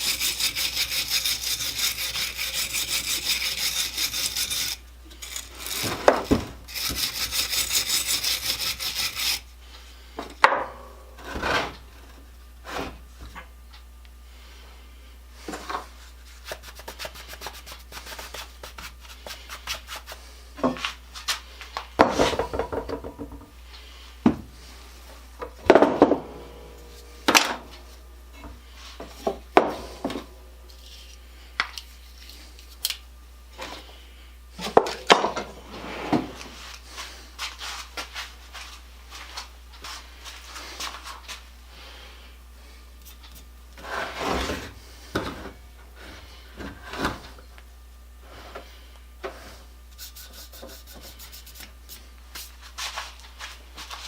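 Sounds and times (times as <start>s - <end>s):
rubbing and scraping at a workbench: 0.0s - 9.5s, 15.4s - 21.4s, 43.0s - 44.8s, 49.3s - 54.0s
steady low hum: 0.0s - 54.0s.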